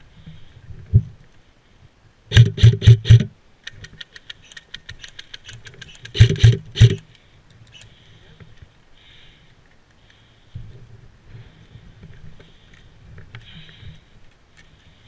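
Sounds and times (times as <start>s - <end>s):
airsoft gun firing bursts: 2.3s - 3.3s, 6.0s - 7.0s
distant rapid clicking gunfire: 2.3s - 3.3s.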